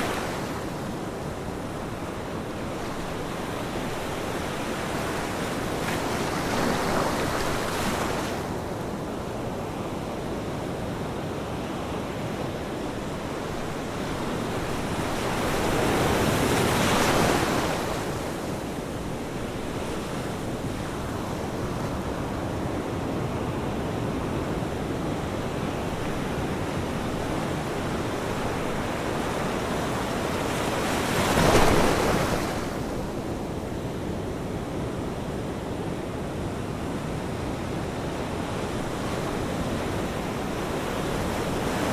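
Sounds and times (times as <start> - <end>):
ocean waves crashing on shore: 0.0 - 41.9
surf wash: 23.5 - 34.1.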